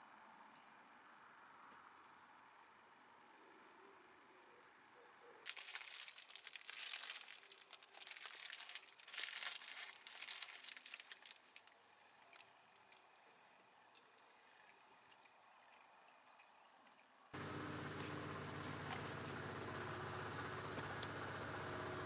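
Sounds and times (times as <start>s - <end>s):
plastic crinkling and rustling: 5.5s - 13.0s.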